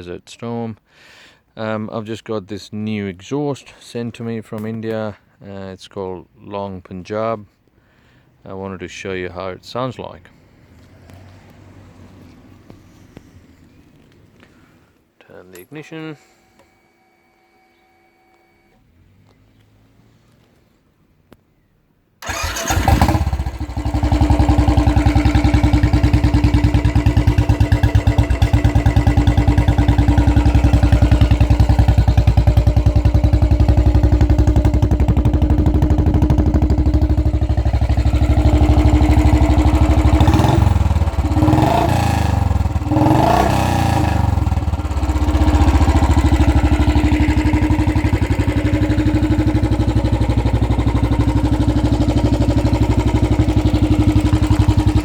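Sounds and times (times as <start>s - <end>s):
motorcycle engine idling: 22.2s - 55.0s
motorcycle engine starting: 22.2s - 55.0s
engine revving blips: 26.8s - 46.8s.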